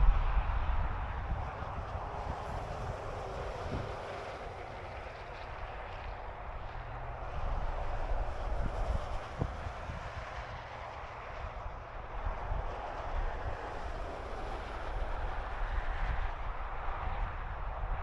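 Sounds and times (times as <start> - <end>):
highway traffic noise: 0.0 - 18.0
wind rumbling on microphone: 0.0 - 18.0.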